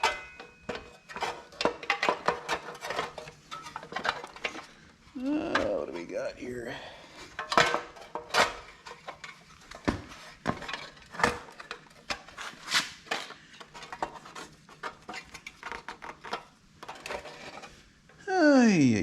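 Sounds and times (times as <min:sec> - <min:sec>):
metal tools clinking: 0:00.0 - 0:04.7.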